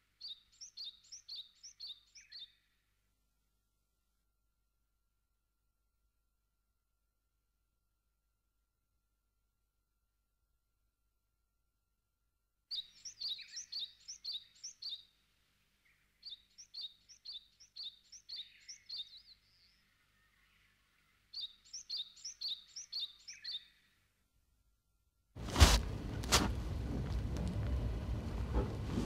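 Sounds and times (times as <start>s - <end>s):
small bird chirping: 0.0s - 2.7s, 12.7s - 15.1s, 15.8s - 24.0s.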